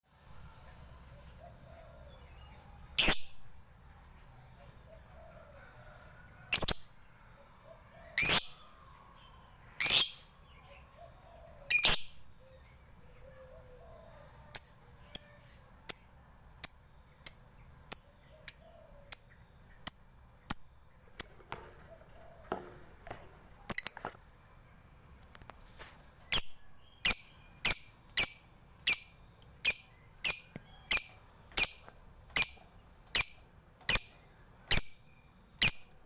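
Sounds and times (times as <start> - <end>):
bird chirping shrilly: 8.2 - 8.6, 9.8 - 10.3, 11.7 - 12.1, 26.3 - 35.0, 35.6 - 36.0
bird ticking: 15.9 - 21.6, 26.4 - 34.9.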